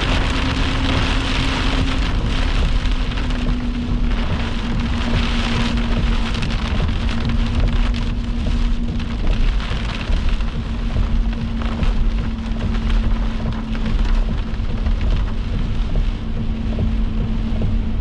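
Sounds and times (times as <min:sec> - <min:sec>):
heavy rain on vehicle: 0:00.0 - 0:18.0
low hum: 0:00.0 - 0:18.0.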